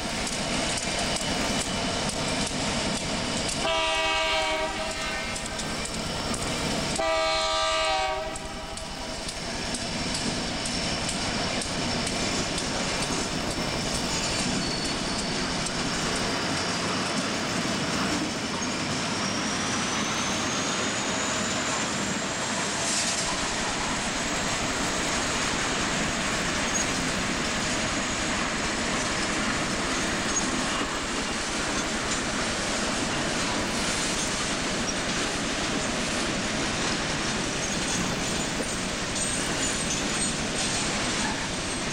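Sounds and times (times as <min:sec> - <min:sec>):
train wheels rumbling on rail: 0:00.0 - 0:41.9
locomotive horn: 0:03.6 - 0:05.5, 0:07.0 - 0:08.9
high wheel squeal: 0:08.9 - 0:17.0, 0:18.3 - 0:35.1, 0:37.5 - 0:41.9.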